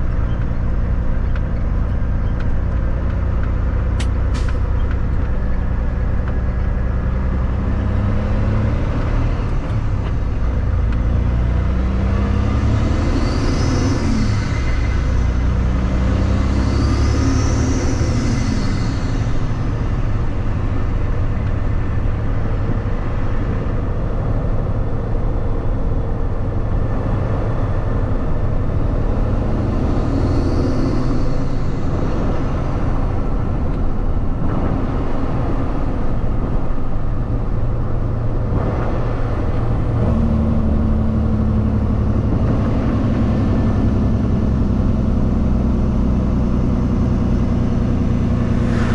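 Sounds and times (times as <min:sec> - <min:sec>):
road noise: 0:00.0 - 0:48.9
truck diesel engine rumble: 0:00.0 - 0:48.9.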